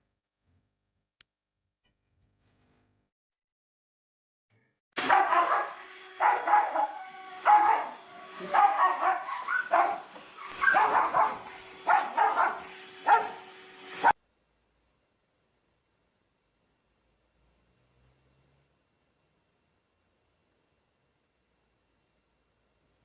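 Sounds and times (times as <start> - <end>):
dog barking: 5.0 - 13.4.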